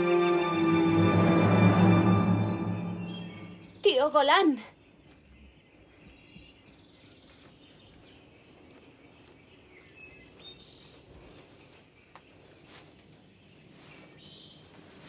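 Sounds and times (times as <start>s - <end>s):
faint outdoor ambience: 0.0s - 15.0s
high bird chirps: 1.8s - 5.0s.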